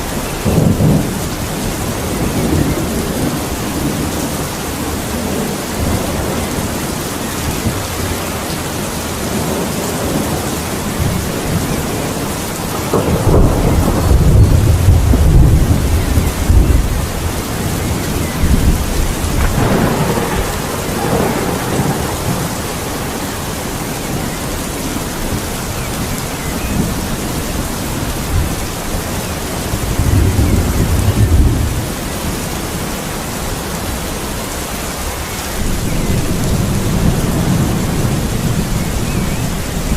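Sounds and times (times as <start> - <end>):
heavy rain: 0.0 - 39.9
thunder rumbling: 0.0 - 39.9.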